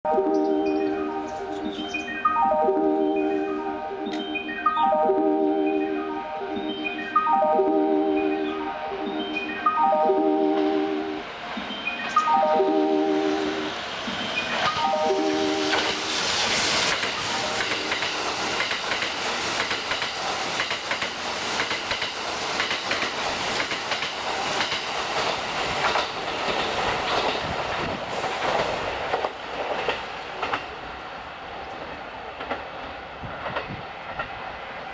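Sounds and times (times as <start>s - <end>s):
electric train passing: 0.1s - 34.9s
wheels clicking over rail joints: 15.7s - 30.8s, 31.6s - 34.5s.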